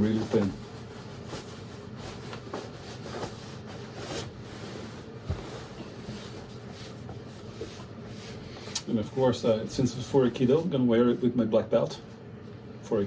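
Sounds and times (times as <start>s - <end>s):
fabric rustling and swishing: 0.0s - 8.5s.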